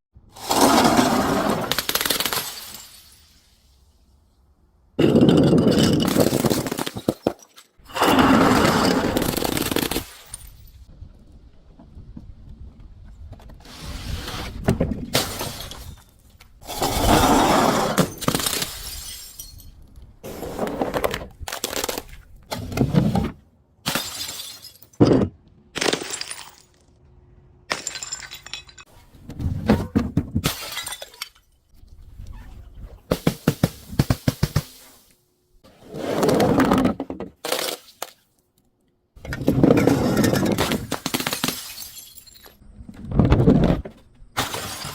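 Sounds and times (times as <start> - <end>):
glass bottles shattering: 0.5 - 3.6, 5.0 - 10.8, 15.1 - 16.9, 18.0 - 19.8, 23.8 - 26.8, 27.7 - 28.9, 30.4 - 31.6, 39.5 - 42.6, 44.4 - 44.9.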